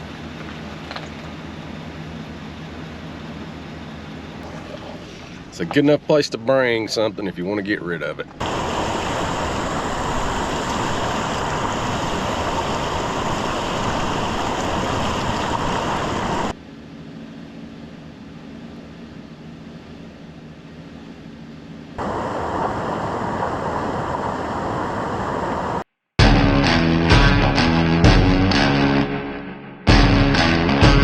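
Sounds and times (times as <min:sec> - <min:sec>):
low hum: 0:00.0 - 0:30.7
truck tyre and wind noise: 0:08.3 - 0:16.6, 0:22.0 - 0:25.8.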